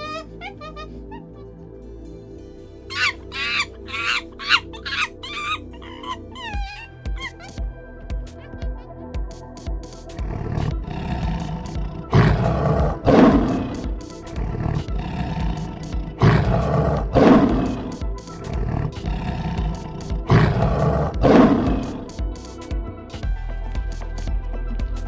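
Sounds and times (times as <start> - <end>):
background music: 0.0 - 25.0
lion roaring: 10.2 - 22.2.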